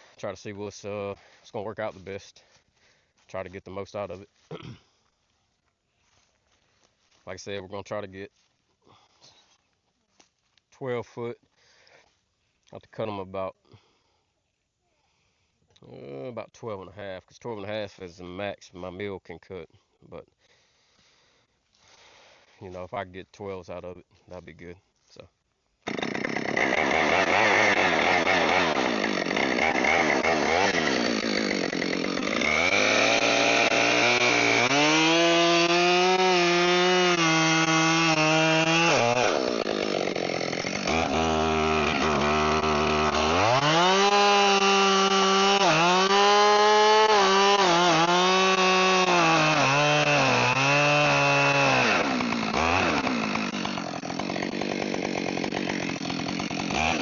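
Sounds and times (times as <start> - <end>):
chainsaw cutting log: 25.8 - 57.0.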